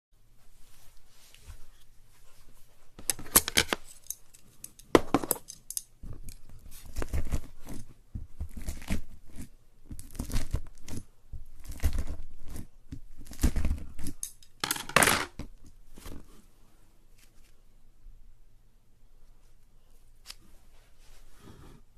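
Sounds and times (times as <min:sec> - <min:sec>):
slime crackling and tearing: 0:08.4 - 0:11.0.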